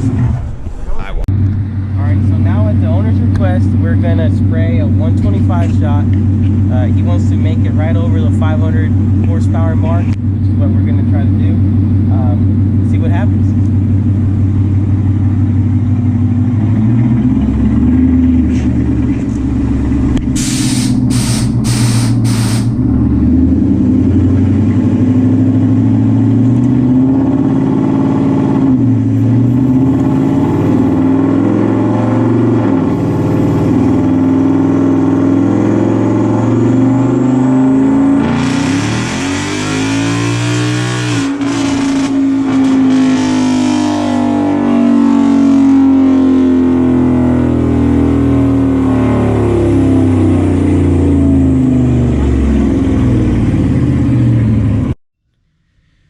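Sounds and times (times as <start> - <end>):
car engine revving on dyno: 16.2 - 54.9.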